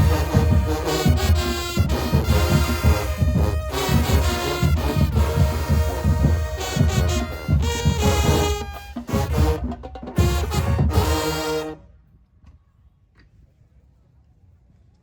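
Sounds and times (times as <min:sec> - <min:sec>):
pounding bass drum: 0:00.0 - 0:11.4
marching band playing: 0:00.0 - 0:11.9
brass horns: 0:00.0 - 0:12.0.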